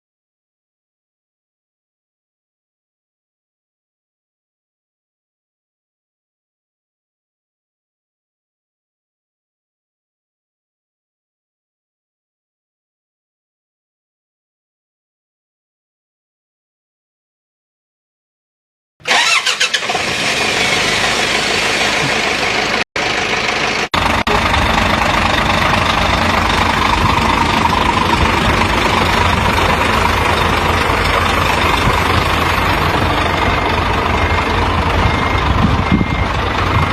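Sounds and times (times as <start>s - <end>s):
truck engine idling: 19.0s - 36.9s
reversing beeper: 20.3s - 36.9s.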